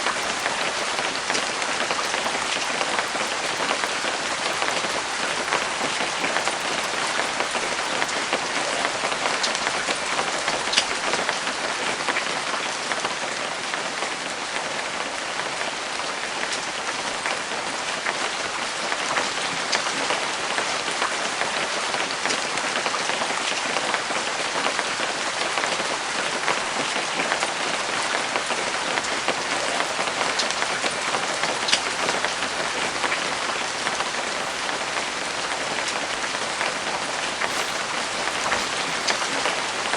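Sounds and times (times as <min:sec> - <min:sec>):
steady rain patter: 0:00.0 - 0:11.7, 0:29.0 - 0:39.9.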